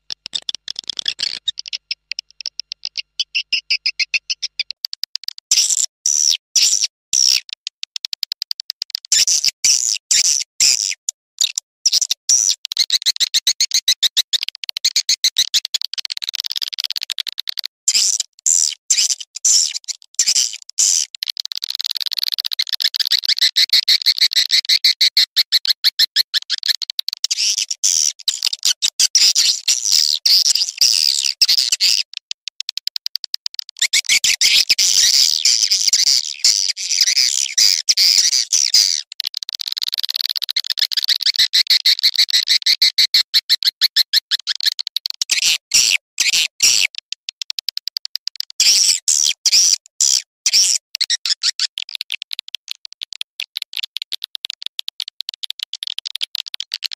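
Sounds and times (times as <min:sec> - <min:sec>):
swiftlets twittering chirps: 0:00.3 - 0:04.9.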